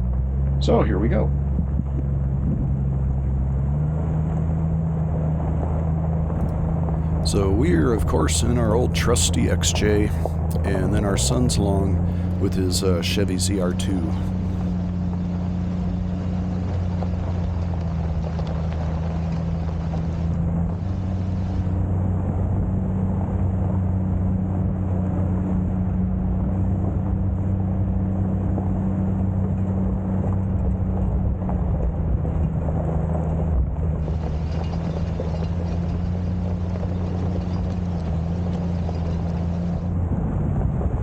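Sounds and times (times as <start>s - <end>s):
car engine running while driving: 1.9s - 14.7s
road noise: 6.4s - 14.7s.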